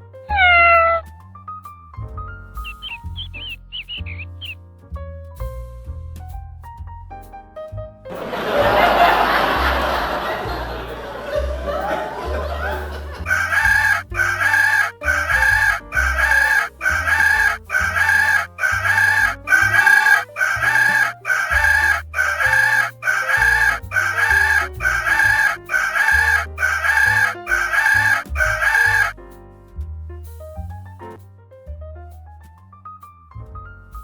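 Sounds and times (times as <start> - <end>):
stepping bass line: 0.3 - 1.2, 2.0 - 31.2
chicken clucking music track: 2.7 - 4.2, 8.2 - 29.1.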